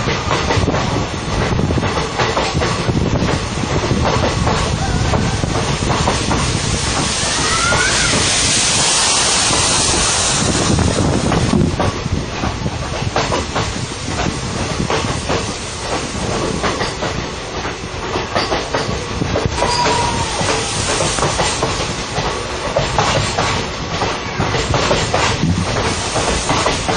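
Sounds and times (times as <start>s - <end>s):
train wheels clicking over rails: 0.0s - 26.9s
loud hiss: 3.4s - 12.1s, 19.0s - 26.9s
wheel squeals: 19.6s - 21.0s.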